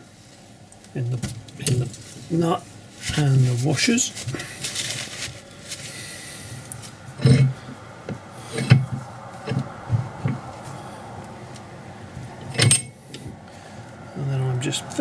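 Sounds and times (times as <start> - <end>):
dull metallic knocks and clinks: 12.4 - 13.0.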